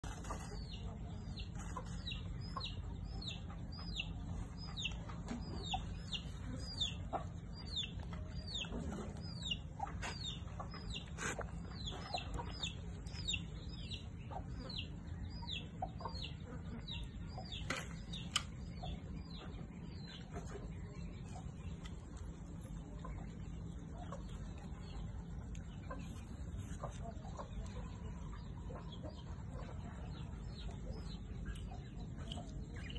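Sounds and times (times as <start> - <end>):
bird chirping: 0.0 - 32.9.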